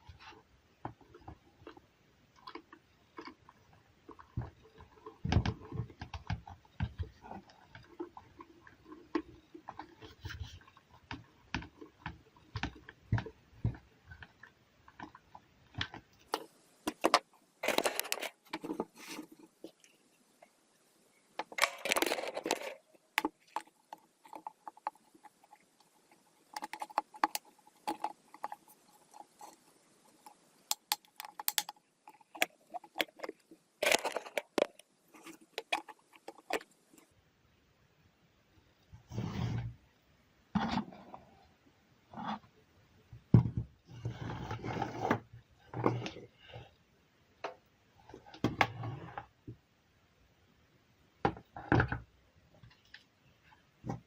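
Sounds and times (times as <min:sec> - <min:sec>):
objects clicking and knocking: 0:02.4 - 0:20.0, 0:21.3 - 0:37.1
scraping or rustling: 0:21.4 - 0:30.4.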